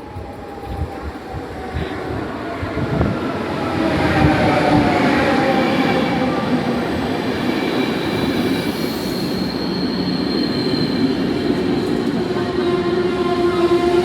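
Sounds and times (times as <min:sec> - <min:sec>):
train brakes squealing: 0:06.3 - 0:14.0.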